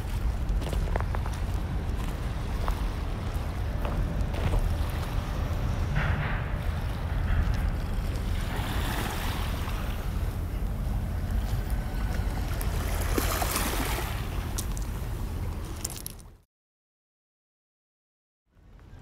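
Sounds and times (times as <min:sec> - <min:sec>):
wind rumbling on microphone: 0:00.0 - 0:16.4
waves washing on beach: 0:08.1 - 0:15.2.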